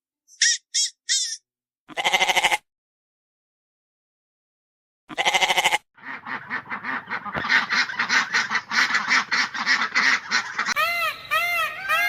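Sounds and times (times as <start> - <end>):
ducks quacking: 6.0 - 12.0.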